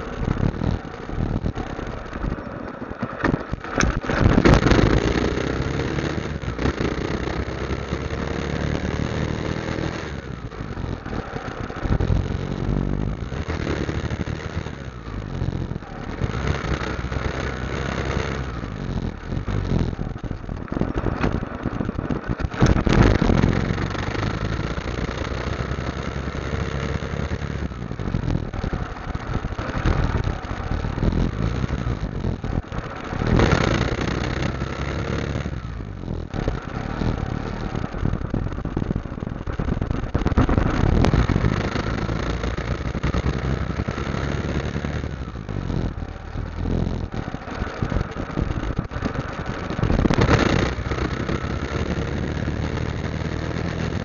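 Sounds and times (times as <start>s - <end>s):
motorcycle engine running: 0.0s - 54.0s
steady rushing noise: 0.0s - 54.0s.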